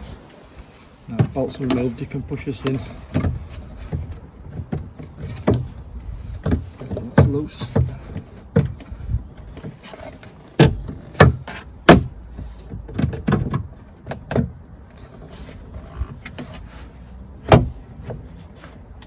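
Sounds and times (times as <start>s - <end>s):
knocks of car door parts: 2.6s - 9.8s, 10.6s - 14.6s, 17.4s - 18.2s.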